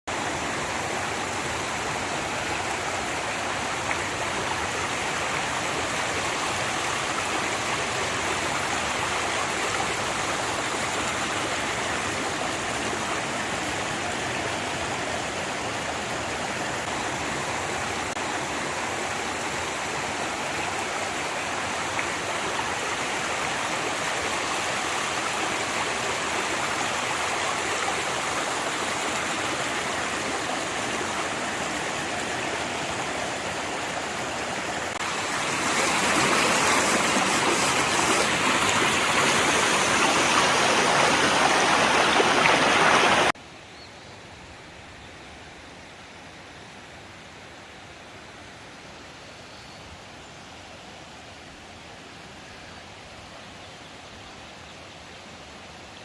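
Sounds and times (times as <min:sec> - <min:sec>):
rainwater runoff rushing: 0:00.1 - 0:43.4.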